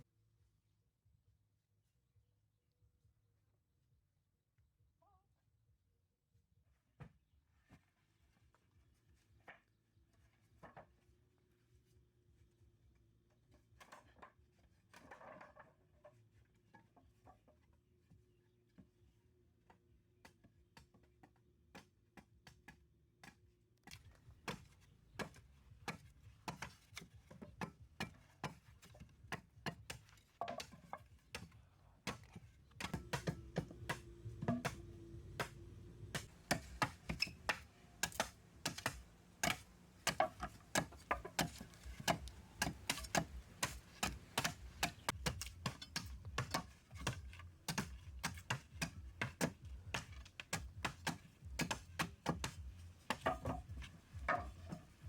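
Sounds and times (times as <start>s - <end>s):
sharp knocks and taps: 22.7s - 55.0s.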